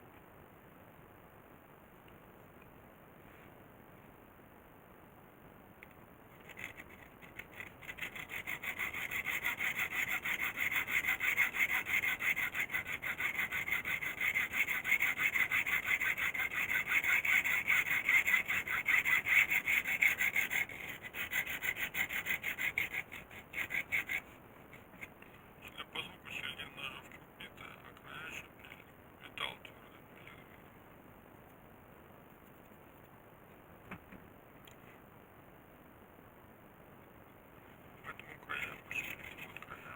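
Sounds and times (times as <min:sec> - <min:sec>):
hand saw strokes: 0:06.4 - 0:25.1, 0:38.6 - 0:39.9.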